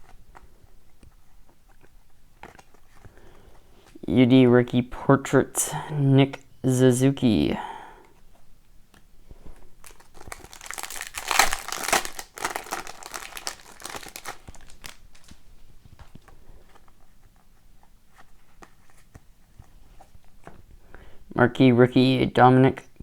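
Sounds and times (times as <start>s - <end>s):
cards being handled: 0.0s - 4.0s, 9.8s - 20.7s
foil wrapper crinkling and tearing: 9.8s - 15.4s.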